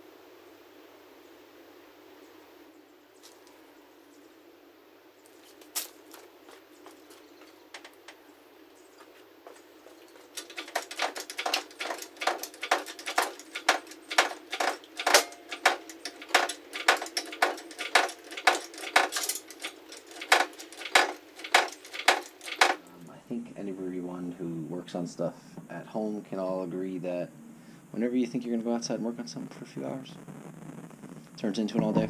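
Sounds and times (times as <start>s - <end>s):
metallic clinking and clicking: 10.0s - 22.9s.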